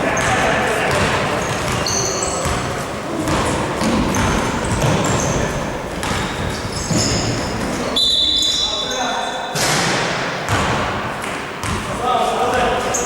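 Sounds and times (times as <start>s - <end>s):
sneakers squeaking on floor: 0.0s - 9.7s, 10.4s - 13.0s
ball bouncing: 0.2s - 7.8s, 10.4s - 11.9s.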